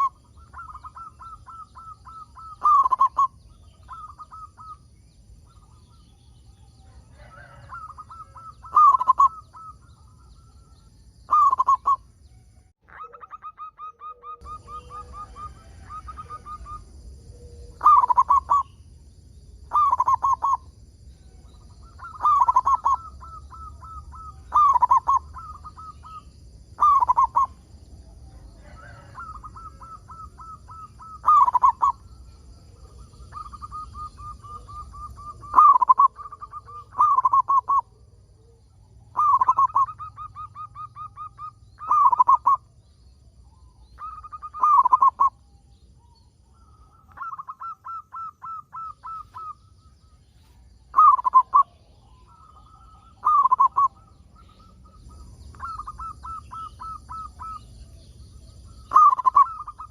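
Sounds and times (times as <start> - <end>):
dove cooing: 0.0 - 12.1, 12.9 - 18.8, 19.6 - 42.9, 43.5 - 59.9
quick repeated bird notes: 33.1 - 37.9, 39.1 - 42.7, 46.6 - 50.2, 50.9 - 57.7.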